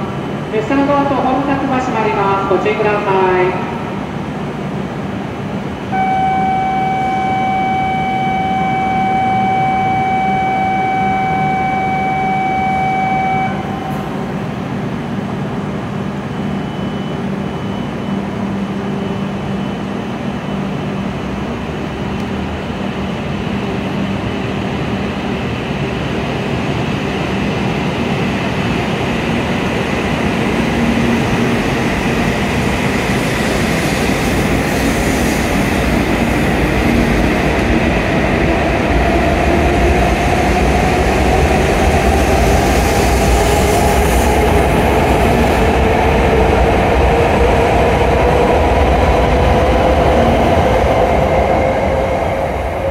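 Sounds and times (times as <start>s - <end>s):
high-speed train running: 0.0s - 52.9s
electronic warning tone: 5.9s - 14.2s.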